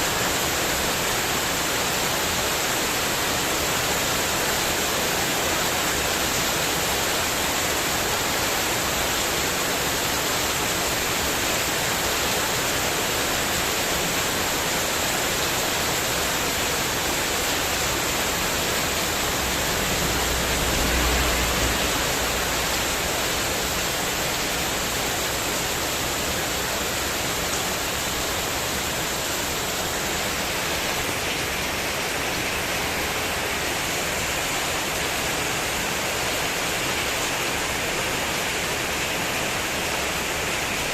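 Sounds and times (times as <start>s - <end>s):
heavy rain on a metal roof: 0.0s - 40.9s.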